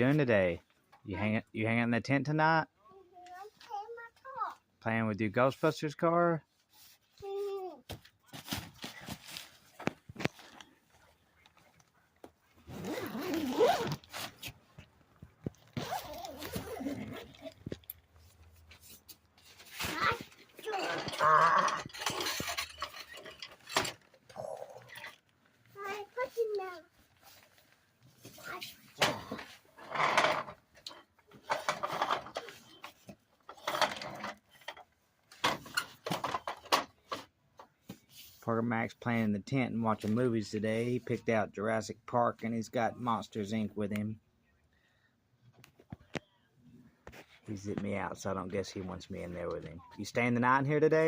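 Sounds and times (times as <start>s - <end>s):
tent zipper being pulled: 12.6s - 14.6s, 15.7s - 17.6s.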